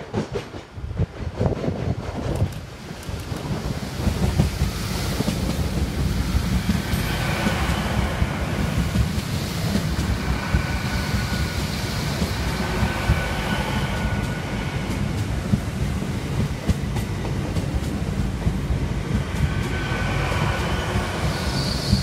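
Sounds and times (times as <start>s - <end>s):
train coaches rumbling past: 0.0s - 22.0s
wheel clicks on rails: 1.7s - 3.6s
faint steady whistle: 19.8s - 22.0s.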